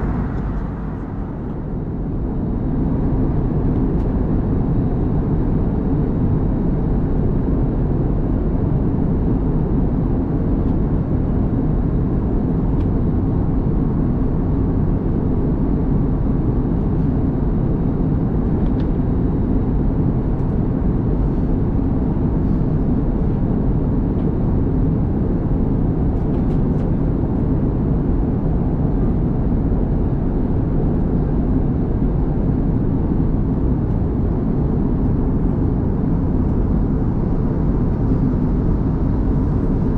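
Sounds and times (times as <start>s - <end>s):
faint steady hum: 0.0s - 3.1s
aircraft engine and airflow rumble: 0.0s - 39.9s.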